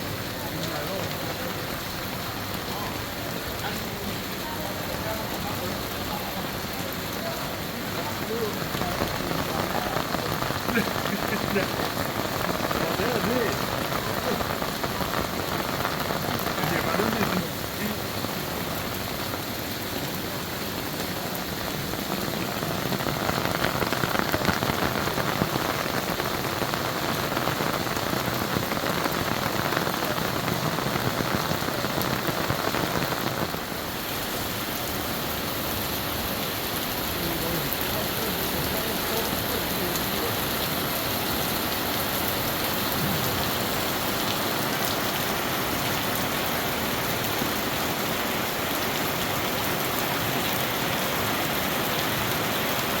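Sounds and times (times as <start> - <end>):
heavy rain on hard surfaces: 0.0 - 53.0.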